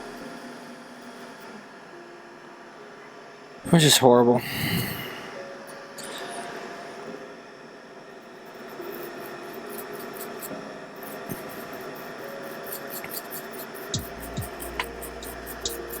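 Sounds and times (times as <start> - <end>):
steady bench hum: 8.3 - 16.0
quick scratching ticks: 12.5 - 16.0.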